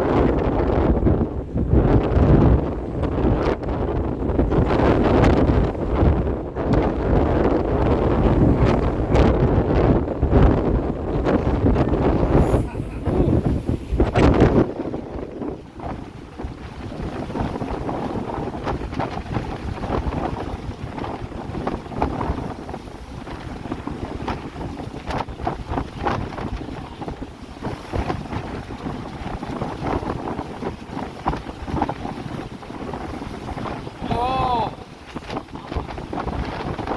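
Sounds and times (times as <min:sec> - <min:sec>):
sea water rushing along hull: 0:00.0 - 0:36.9
wind buffeting microphone: 0:00.0 - 0:36.9.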